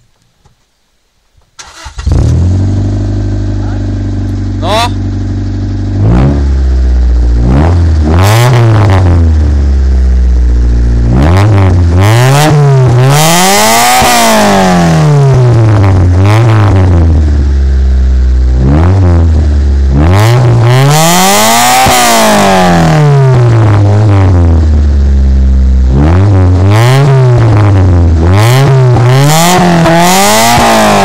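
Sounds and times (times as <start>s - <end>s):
car engine revving from idle: 1.6s - 31.0s.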